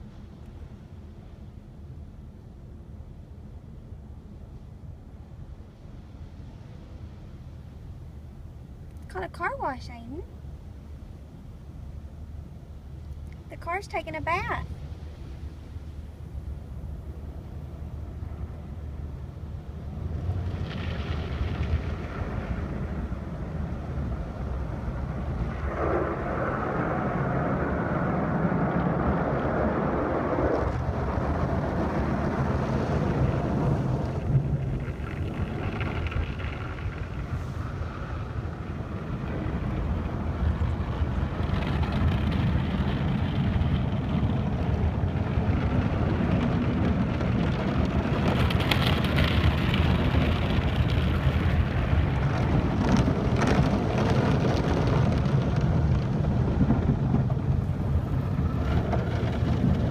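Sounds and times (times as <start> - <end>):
car wash machinery rumble: 0.0 - 59.9
water on car bodywork: 14.8 - 59.9.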